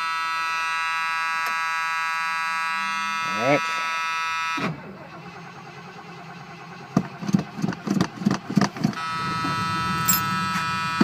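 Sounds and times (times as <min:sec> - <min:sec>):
electric warning buzzer: 0:00.0 - 0:04.8, 0:09.0 - 0:11.0
car engine cranking and popping: 0:04.6 - 0:11.0.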